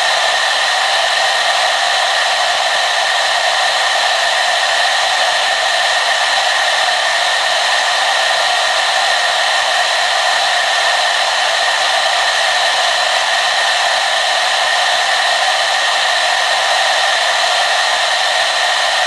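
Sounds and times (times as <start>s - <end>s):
hair dryer running: 0.0s - 19.0s.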